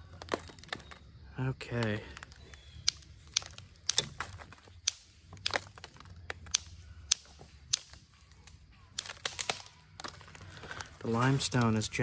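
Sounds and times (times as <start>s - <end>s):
billet striking stone in sharp clicks: 6.5s - 8.0s.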